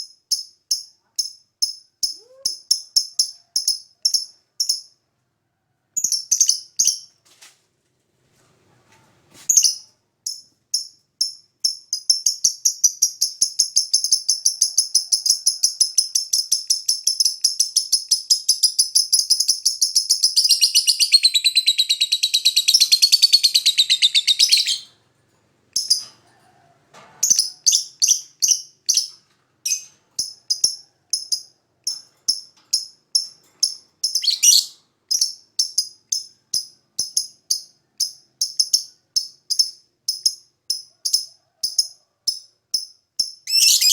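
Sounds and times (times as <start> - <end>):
bird chattering trill: 10.8 - 24.9, 29.7 - 41.3, 43.2 - 43.9
bird sharp chirps: 16.4 - 25.0, 33.2 - 40.4, 43.2 - 43.9.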